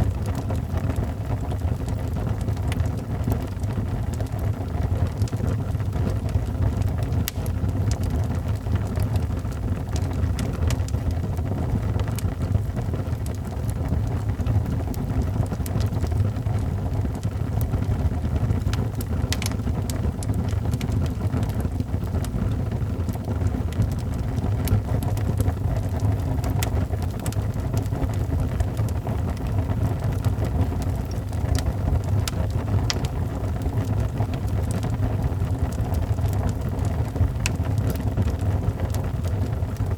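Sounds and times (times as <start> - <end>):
fire low rumble: 0.0 - 39.9
fire popping and snapping: 0.0 - 39.9.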